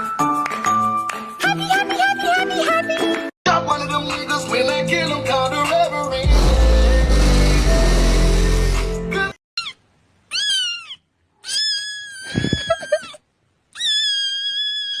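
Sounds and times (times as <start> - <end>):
music: 0.0 - 9.4
cat meowing: 9.6 - 13.2, 13.8 - 15.0.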